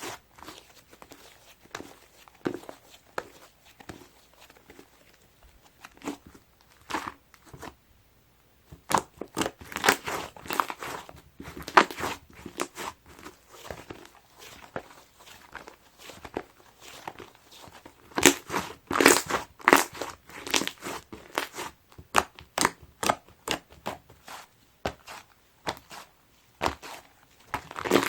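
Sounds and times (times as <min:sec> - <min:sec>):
slime squeezed by hand crackling: 0:18.1 - 0:23.6.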